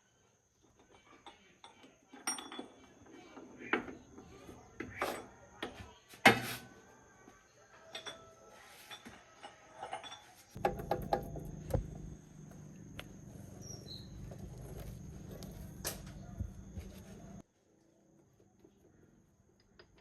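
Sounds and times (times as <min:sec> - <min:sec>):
metal tools clinking and clanking: 0:00.8 - 0:03.0, 0:07.9 - 0:11.8.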